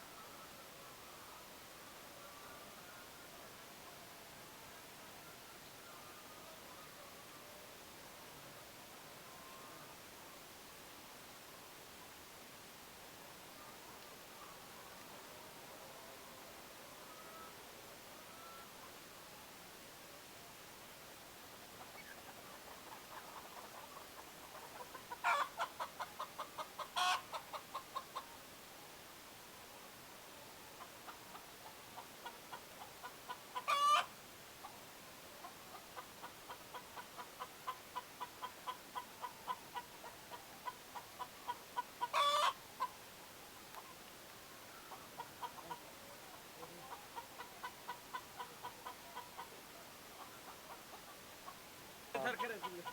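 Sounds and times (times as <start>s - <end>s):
hen cackling: 22.8s - 28.3s, 32.2s - 34.1s, 35.7s - 43.0s, 50.2s - 52.9s.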